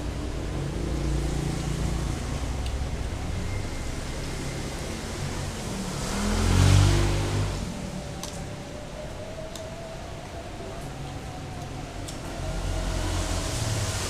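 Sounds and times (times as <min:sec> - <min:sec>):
vehicle passing close: 0:00.0 - 0:08.6, 0:12.2 - 0:14.0.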